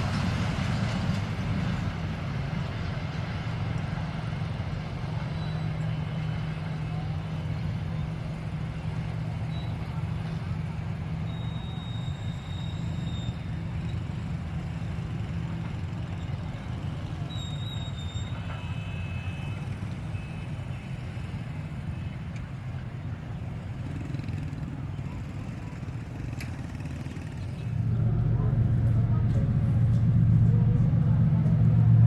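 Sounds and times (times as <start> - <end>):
diesel locomotive rumbling: 0.0 - 32.0
faint high whistling tones: 5.1 - 7.1, 9.3 - 10.0, 11.1 - 14.1, 17.2 - 19.6.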